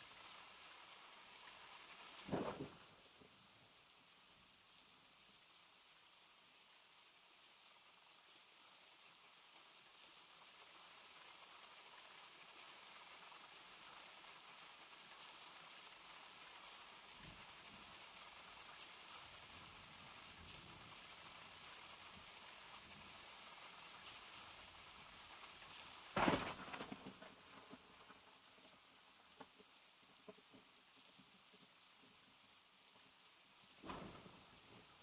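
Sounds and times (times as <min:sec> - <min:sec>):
rain falling: 0:00.0 - 0:35.0
sudden loud crack: 0:26.2 - 0:27.1.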